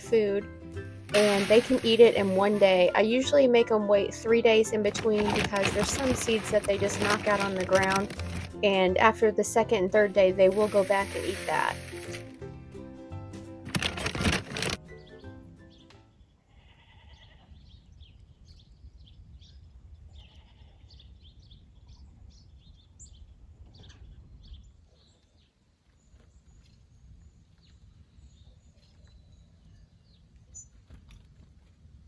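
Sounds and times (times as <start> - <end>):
faint goat bleats: 16.5 - 17.6, 20.2 - 21.0.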